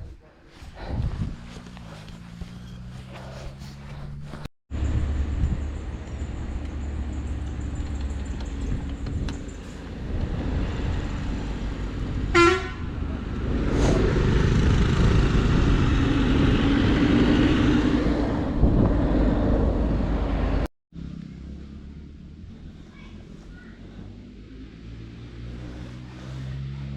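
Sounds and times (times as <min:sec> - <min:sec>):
wind rumble on microphone: 0:00.0 - 0:20.7
road traffic: 0:00.0 - 0:26.9
motor vehicle passing loudly: 0:00.8 - 0:26.9
vehicle horn toot: 0:12.3 - 0:13.0.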